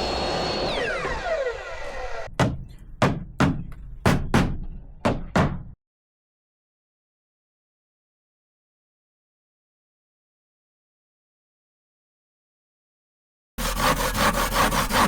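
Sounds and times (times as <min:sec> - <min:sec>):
power saw spinning down: 0:00.0 - 0:02.3
sharp knocks: 0:02.3 - 0:05.8.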